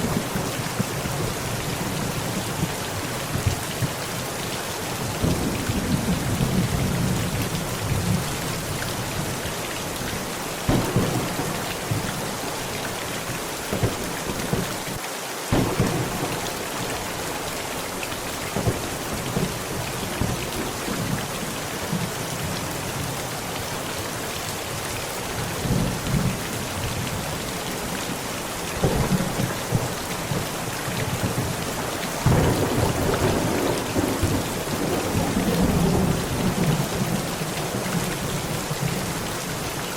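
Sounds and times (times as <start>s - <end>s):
heavy rain falling: 0.0s - 39.9s
thunder rumbling: 10.6s - 21.2s, 28.8s - 39.2s.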